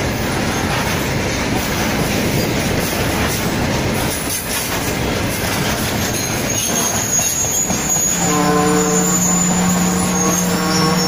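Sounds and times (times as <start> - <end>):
train wheels rumbling and clattering: 0.0 - 11.0
high wheel squeal: 5.6 - 11.0.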